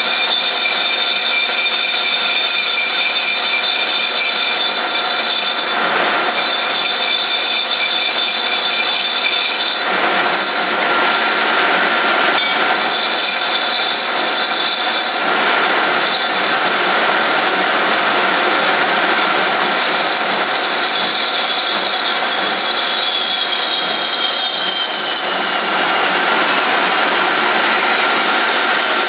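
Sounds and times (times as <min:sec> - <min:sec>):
cutting tool cutting metal: 0:00.0 - 0:10.8, 0:12.2 - 0:16.5, 0:19.2 - 0:26.2
lathe running: 0:00.0 - 0:29.0.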